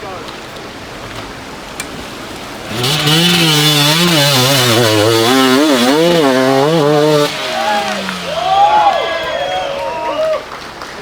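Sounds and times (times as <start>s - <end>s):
dirt bike engine revving: 2.5s - 9.9s.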